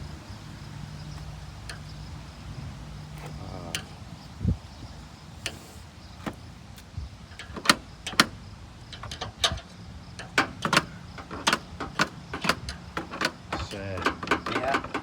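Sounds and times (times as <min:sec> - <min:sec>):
sharp clicks and knocks: 0:07.3 - 0:15.0.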